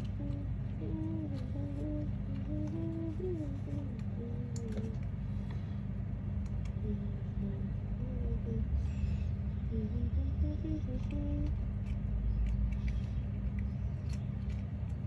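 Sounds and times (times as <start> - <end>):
faint single-line tune: 0.0 - 5.7
steady low rumble: 0.0 - 15.0.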